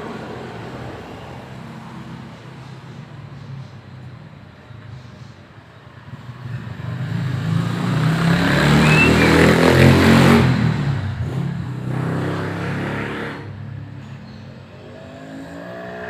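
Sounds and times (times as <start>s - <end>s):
vehicle engine passing by: 6.0s - 14.0s.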